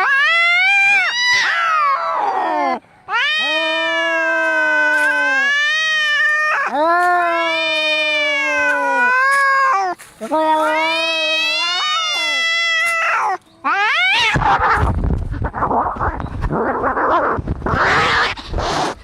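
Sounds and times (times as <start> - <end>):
cat yowling: 0.0 - 18.8.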